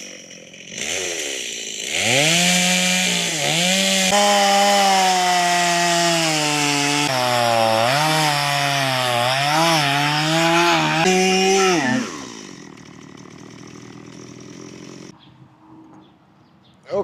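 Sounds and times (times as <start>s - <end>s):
power tool running under load: 6.2s - 15.1s.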